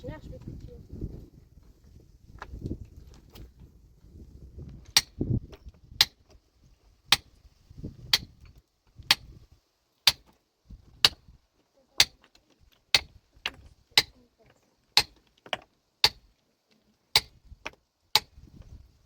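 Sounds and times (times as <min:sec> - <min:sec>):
metal tool striking rock: 0:04.9 - 0:06.3, 0:07.1 - 0:07.3, 0:08.1 - 0:09.3, 0:10.0 - 0:10.4, 0:11.0 - 0:11.3, 0:12.0 - 0:12.3, 0:12.9 - 0:14.2, 0:15.0 - 0:16.3, 0:17.1 - 0:18.4.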